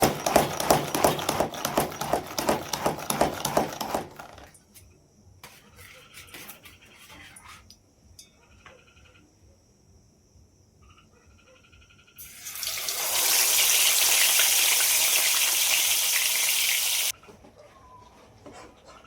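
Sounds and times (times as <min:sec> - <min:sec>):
rapid clatter of sharp knocks: 0:00.0 - 0:04.5.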